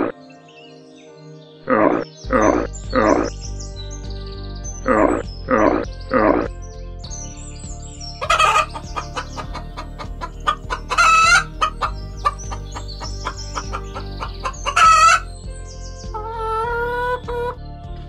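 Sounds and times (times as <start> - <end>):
chickens clucking: 8.2 - 15.3, 16.1 - 17.6
loud short chicken calls: 10.4 - 11.9.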